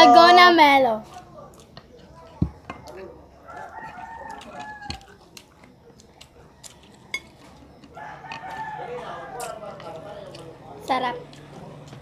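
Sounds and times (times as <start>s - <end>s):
light eating clicks: 1.0s - 12.0s
rooster crowing: 2.8s - 5.4s, 6.2s - 12.0s.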